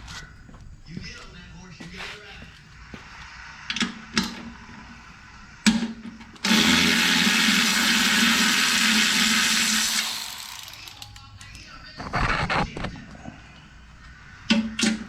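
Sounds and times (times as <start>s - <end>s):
electric power tool running: 6.4s - 11.2s.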